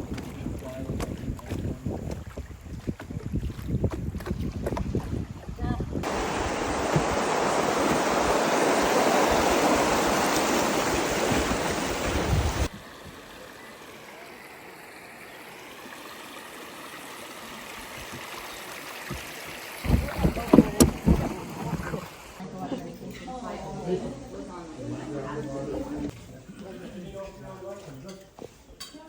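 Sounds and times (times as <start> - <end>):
water flowing: 0.0 - 22.4.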